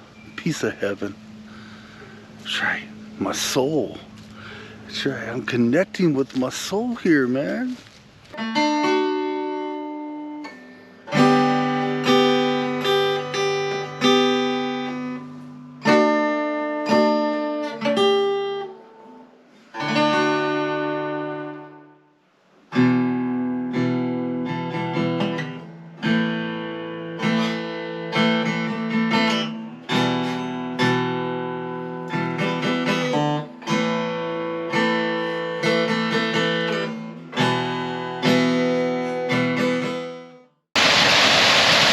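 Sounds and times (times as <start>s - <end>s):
acoustic guitar strummed chords: 8.4s - 40.5s.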